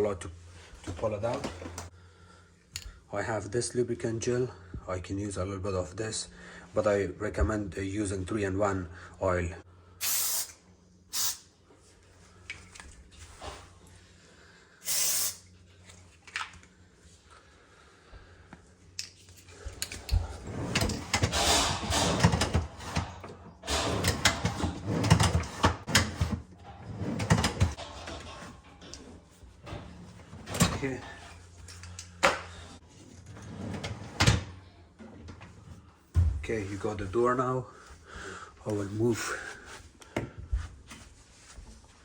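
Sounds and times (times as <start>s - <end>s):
short hissing bursts: 10.0s - 11.5s, 14.8s - 15.5s
knocks clatters and scrapes: 19.3s - 35.8s.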